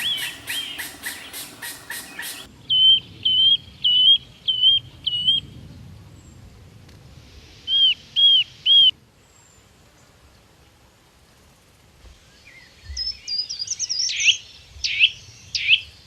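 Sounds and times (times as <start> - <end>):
bird whistling clear note: 0.0 - 2.5
faint high bird chirps: 0.0 - 2.9.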